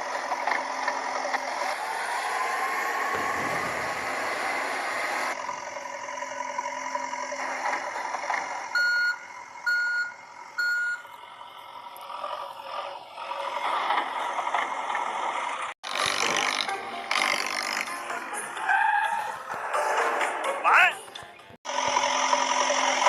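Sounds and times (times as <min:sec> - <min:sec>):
engine running: 0:00.0 - 0:23.0
vehicle reversing beeper: 0:08.7 - 0:11.1.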